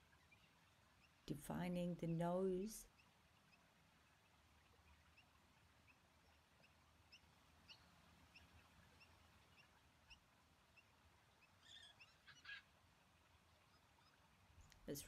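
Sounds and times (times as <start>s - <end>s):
high bird chirps: 11.6s - 12.6s.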